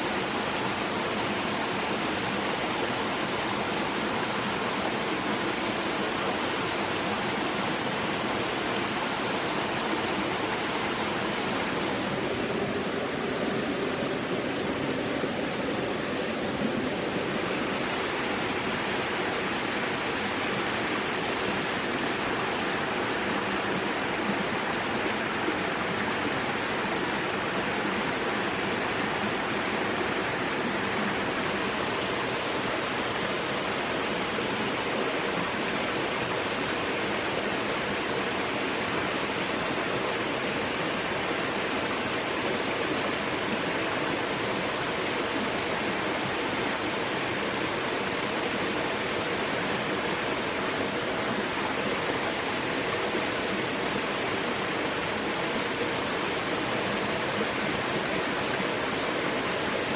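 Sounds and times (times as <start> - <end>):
steady rushing noise: 0.0 - 35.5.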